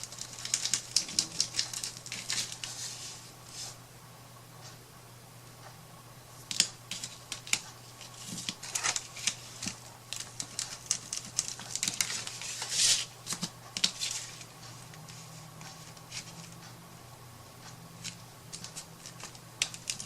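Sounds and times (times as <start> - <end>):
steady low hum: 0.0 - 20.0
small clicks and taps: 17.6 - 20.0.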